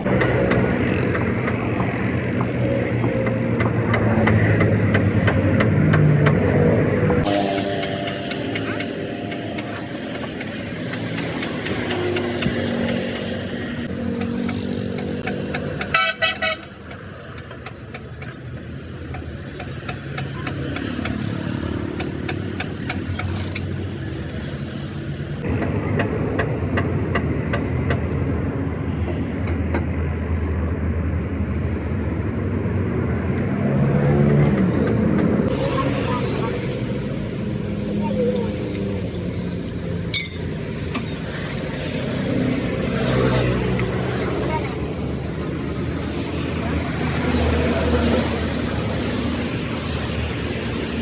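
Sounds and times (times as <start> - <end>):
road traffic engines: 0.0 - 51.0
rapidly pulsing horn blast: 15.7 - 16.8.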